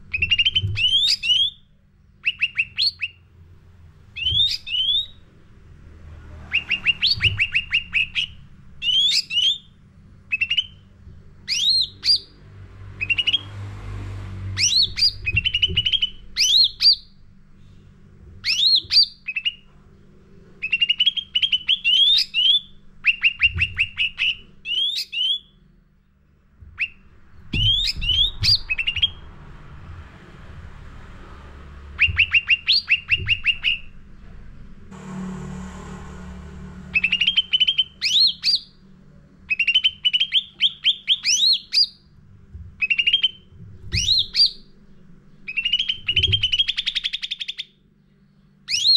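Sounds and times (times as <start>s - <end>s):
songbird singing: 0.0s - 3.3s, 4.1s - 5.3s, 6.5s - 13.6s, 14.5s - 17.2s, 18.4s - 20.0s, 20.6s - 25.7s, 26.6s - 29.5s, 31.9s - 34.0s, 36.8s - 42.1s, 42.8s - 48.9s
faint low hum: 0.0s - 48.9s.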